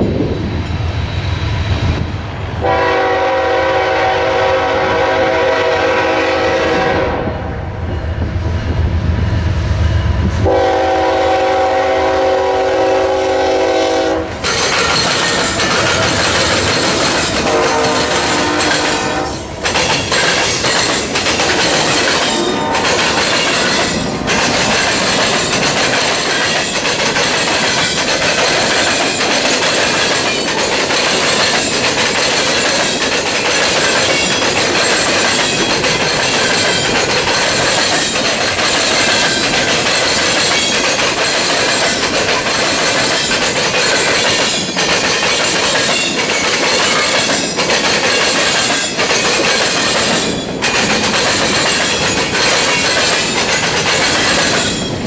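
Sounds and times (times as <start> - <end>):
locomotive air horn blasts: 2.6 - 7.5, 10.4 - 14.4, 17.4 - 19.5, 22.3 - 22.9
train wheels clattering on rails: 7.9 - 55.0.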